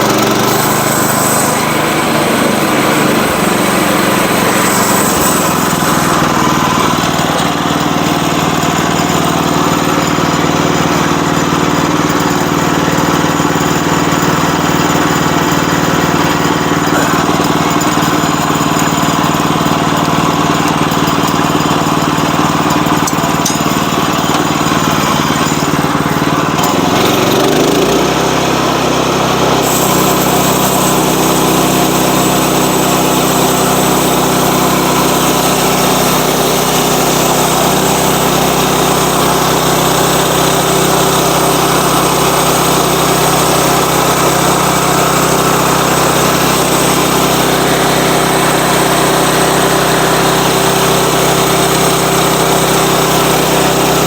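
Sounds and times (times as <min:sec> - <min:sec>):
sawmill engine running: 0:00.0 - 0:54.0.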